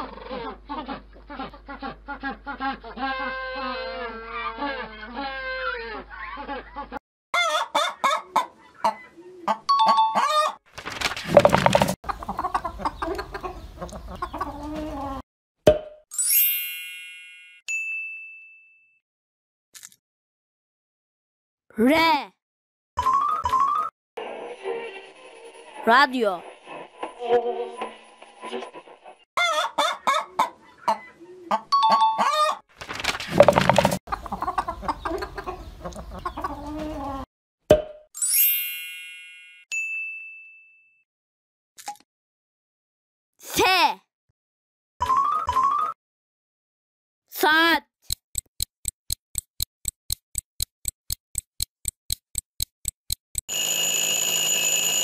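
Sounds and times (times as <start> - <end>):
chickens clucking: 6.1 - 10.6, 11.3 - 15.2, 29.4 - 32.6, 33.3 - 37.3
single-toned ding: 38.2 - 41.0.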